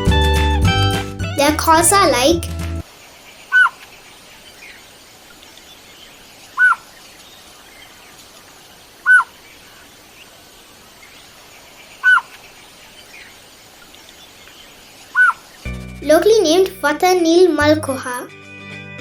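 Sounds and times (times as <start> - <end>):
bird calling clear notes: 3.5 - 3.8, 6.6 - 6.8, 9.0 - 9.3, 15.2 - 15.4.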